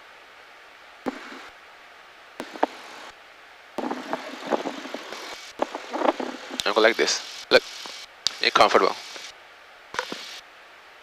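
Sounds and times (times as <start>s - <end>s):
faint steady hiss: 0.0s - 11.0s
sharp clicks and knocks: 2.4s - 2.8s, 10.0s - 10.3s.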